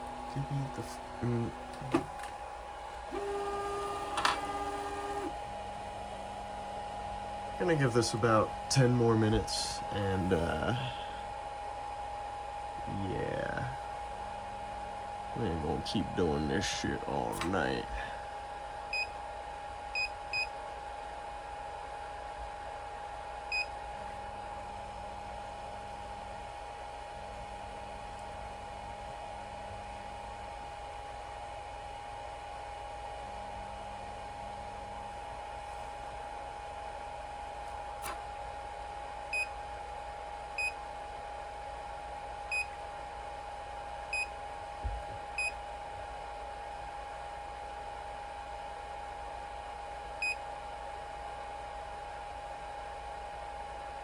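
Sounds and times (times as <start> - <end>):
steady hum: 0.0 - 23.3
steady high hum: 0.0 - 54.0.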